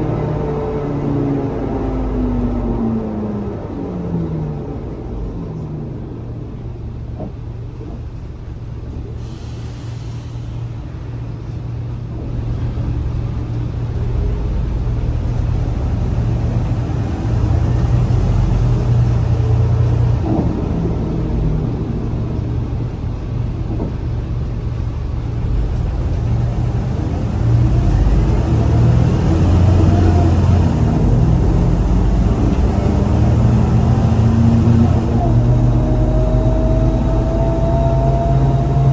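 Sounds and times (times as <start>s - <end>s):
bus diesel engine rumble: 0.0s - 38.9s
brief hiss: 9.2s - 10.8s.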